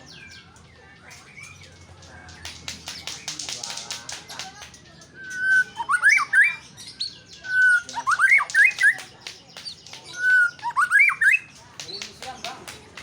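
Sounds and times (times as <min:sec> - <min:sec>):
bird whistling song: 0:05.0 - 0:11.5.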